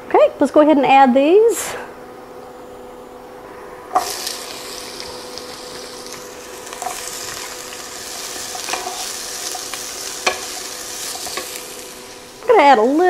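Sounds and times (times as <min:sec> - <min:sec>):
peppers sizzling in oil: 0:03.9 - 0:13.0
wooden spatula clicking on pan: 0:10.2 - 0:10.6.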